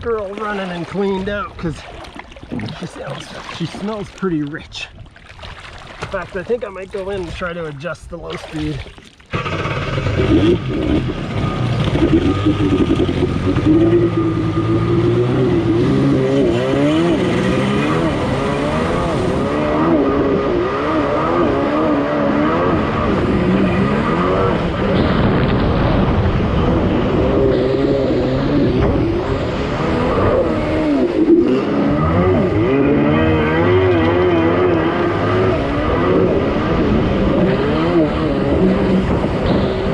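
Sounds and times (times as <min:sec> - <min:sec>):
jet ski engine running: 0:08.5 - 0:39.9.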